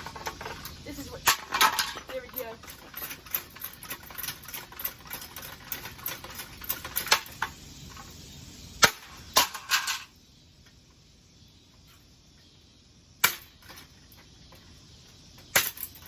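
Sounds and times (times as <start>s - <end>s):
ceiling fan being smashed: 8.8s - 10.1s, 13.2s - 14.1s, 15.4s - 16.0s.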